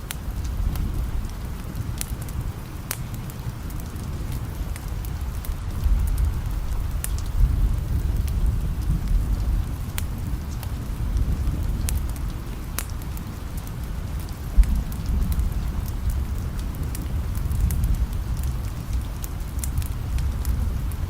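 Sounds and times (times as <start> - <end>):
steady rain: 0.0 - 21.0
distant thunder rumble: 0.4 - 21.0.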